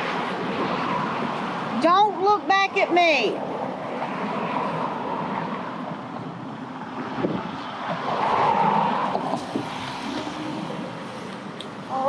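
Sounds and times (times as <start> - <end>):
road and traffic noise: 0.0 - 12.0
wind on microphone: 3.4 - 12.0.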